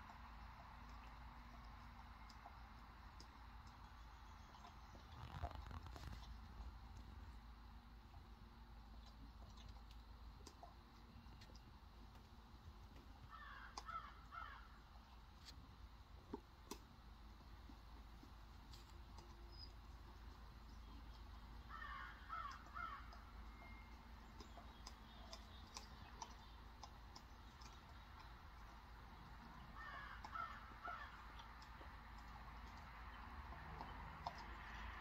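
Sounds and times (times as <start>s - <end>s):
faint bird calls: 13.2s - 15.1s, 20.9s - 26.6s, 29.4s - 31.9s.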